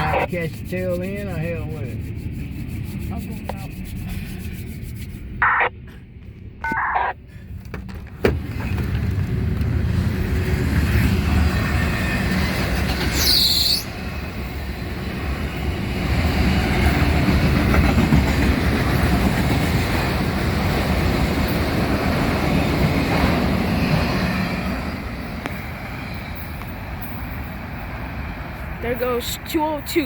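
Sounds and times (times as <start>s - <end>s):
freight train cars rumbling past: 7.5s - 30.0s.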